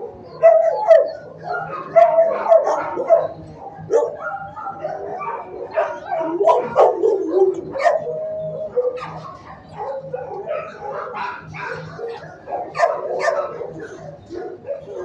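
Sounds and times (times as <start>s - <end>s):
dogs barking and whining: 0.0s - 15.0s.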